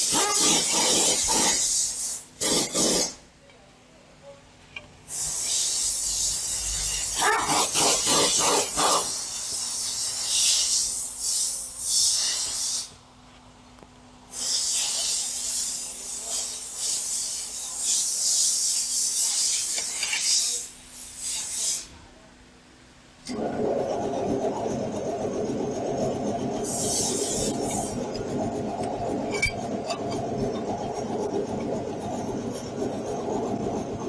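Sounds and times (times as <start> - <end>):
spraying hiss: 5.1 - 12.9.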